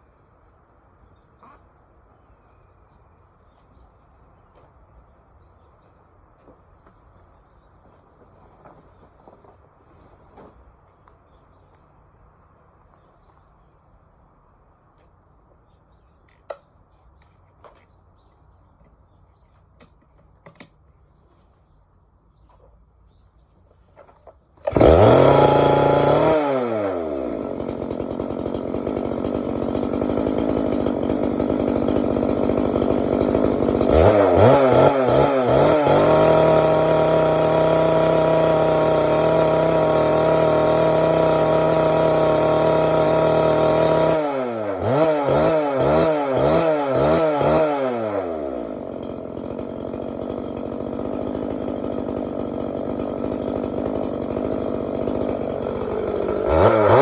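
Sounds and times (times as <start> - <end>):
two-stroke engine cutter revving: 24.6 - 57.0.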